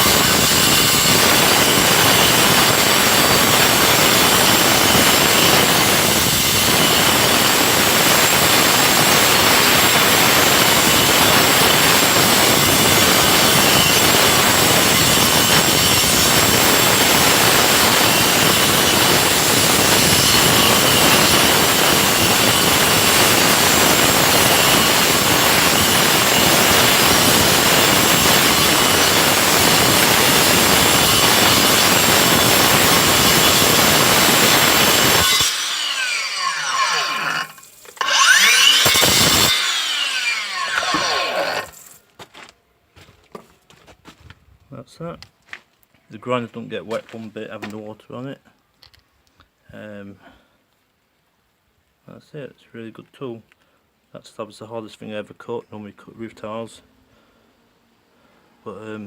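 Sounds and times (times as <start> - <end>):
angle grinder cutting concrete: 0.0 - 42.0.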